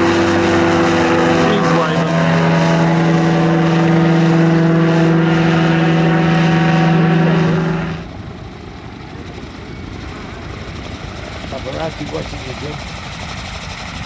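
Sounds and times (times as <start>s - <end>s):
model plane motor and propeller: 5.9s - 14.0s.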